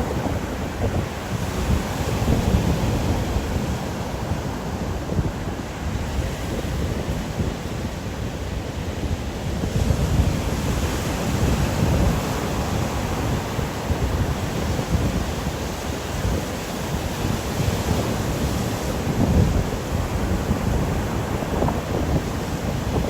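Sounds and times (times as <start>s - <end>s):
waves rushing: 0.0s - 23.0s
wind rumbling on microphone: 0.0s - 23.0s.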